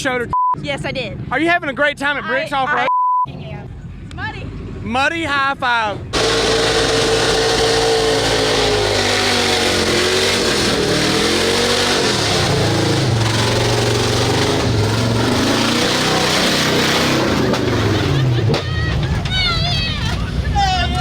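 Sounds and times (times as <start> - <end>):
truck engine revving hard: 6.1 - 19.3.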